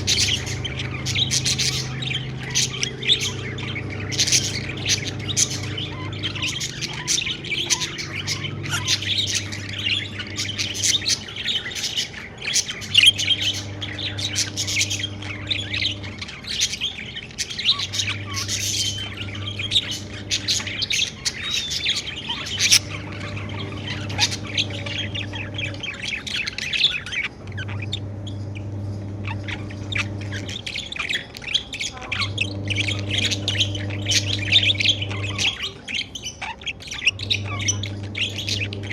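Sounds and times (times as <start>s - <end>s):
budgerigars chirping: 0.0s - 38.9s
faint low hum: 0.0s - 38.9s.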